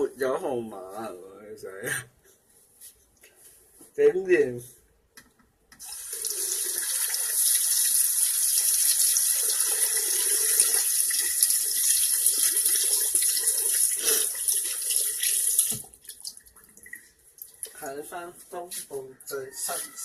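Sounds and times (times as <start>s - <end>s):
running water: 5.8s - 17.8s.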